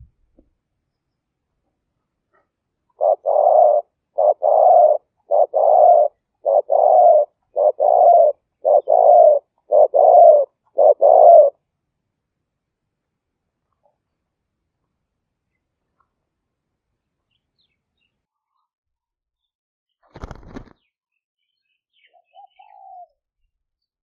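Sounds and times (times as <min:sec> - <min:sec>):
dove cooing: 0:03.0 - 0:11.6, 0:22.1 - 0:23.2.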